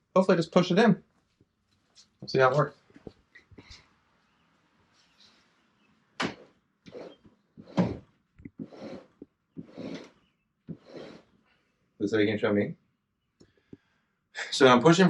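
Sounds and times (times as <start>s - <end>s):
truck camper scraping and knocking: 6.2s - 11.3s.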